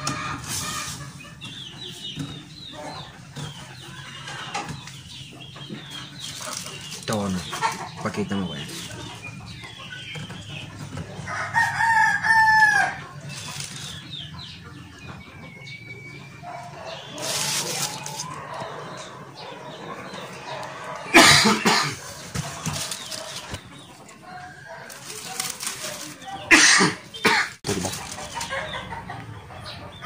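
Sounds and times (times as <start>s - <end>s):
chicken calls: 0.0s - 30.0s
rooster crowing: 11.3s - 13.1s.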